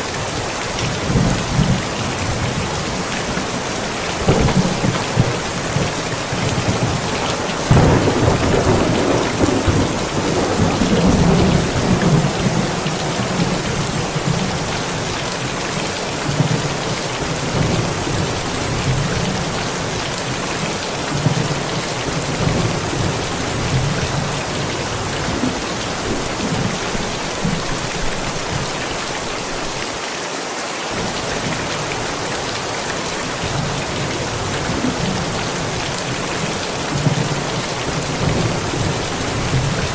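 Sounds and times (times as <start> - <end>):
rain pouring: 0.0 - 39.9
thunder rumbling: 1.0 - 15.1.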